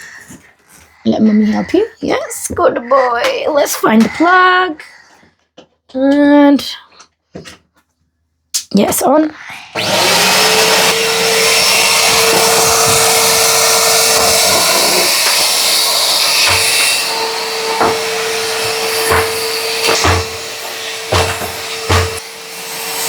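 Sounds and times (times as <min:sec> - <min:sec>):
vacuum cleaner running: 0:09.7 - 0:23.0.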